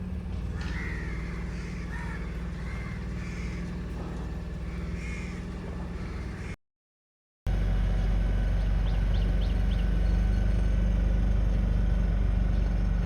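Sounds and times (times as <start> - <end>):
boat engine humming: 0.0 - 6.6, 7.5 - 13.0
crows cawing: 0.3 - 6.6.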